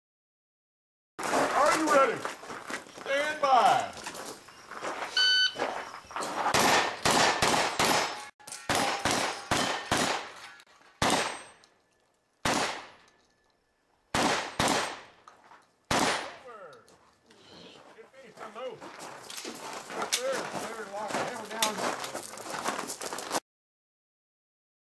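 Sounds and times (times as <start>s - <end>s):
shot timer beep: 5.2s - 5.6s
shotgun shots: 6.5s - 11.6s, 12.4s - 13.1s, 14.1s - 15.2s, 15.9s - 16.6s
steel plates clanging: 8.0s - 12.0s.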